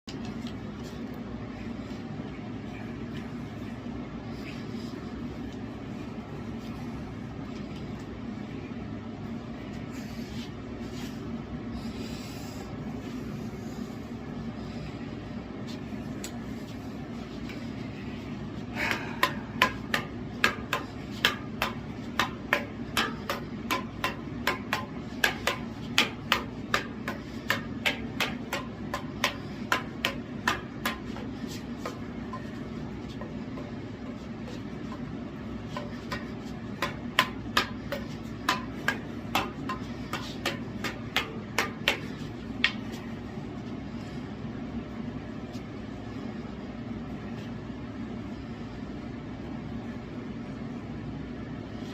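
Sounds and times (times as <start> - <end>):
devil sticks clacking: 18.8 - 32.4.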